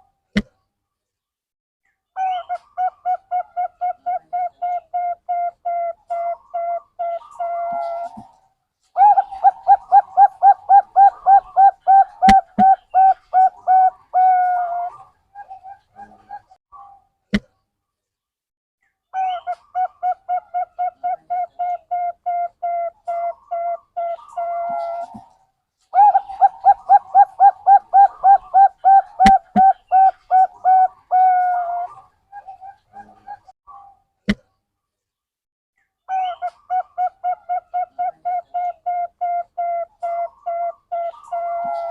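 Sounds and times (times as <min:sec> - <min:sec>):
dove cooing: 0:02.8 - 0:08.3, 0:09.0 - 0:16.5, 0:19.5 - 0:25.3, 0:26.0 - 0:33.5, 0:36.2 - 0:41.9.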